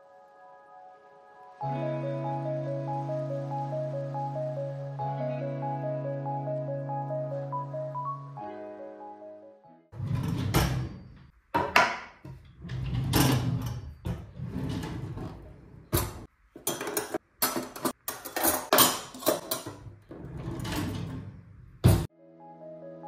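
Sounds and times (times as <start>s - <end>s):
cutlery clinking: 16.0s - 20.0s
drawer and cabinet door knocking: 21.8s - 22.1s.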